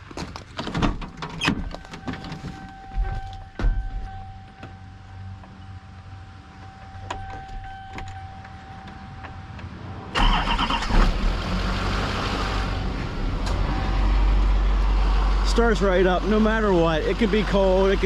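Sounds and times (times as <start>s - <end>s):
steady high tone: 1.8s - 10.2s
diesel engine cranking and idling: 6.5s - 18.0s.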